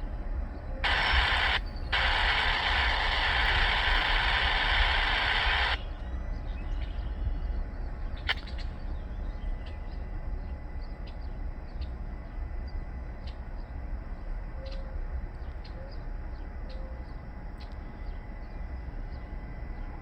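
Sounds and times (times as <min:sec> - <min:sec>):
steady low rumble: 0:00.0 - 0:14.2
small clicks: 0:00.8 - 0:05.8
faint bird chirps: 0:00.8 - 0:11.9.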